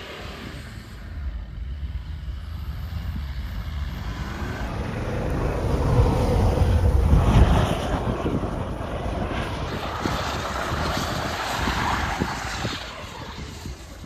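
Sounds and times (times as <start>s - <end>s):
diesel engine rumbling: 0.0s - 11.3s.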